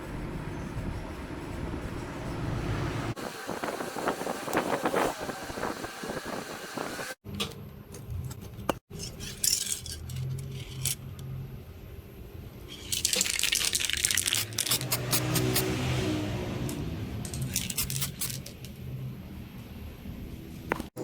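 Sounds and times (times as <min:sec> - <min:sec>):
metal clinking and rattling: 0:08.4 - 0:11.2.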